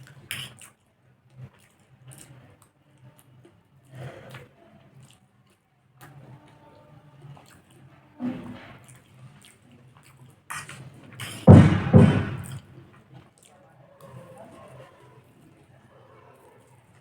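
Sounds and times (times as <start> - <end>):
wet mouth eating sounds: 0.0 - 0.8, 1.5 - 6.6, 7.3 - 11.4.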